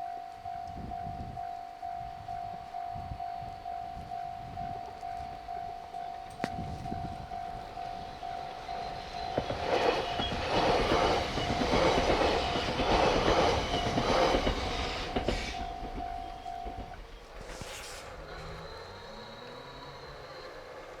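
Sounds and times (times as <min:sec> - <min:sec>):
crossing warning bell ringing: 0:00.0 - 0:21.0
train wheels clacking: 0:04.7 - 0:21.0.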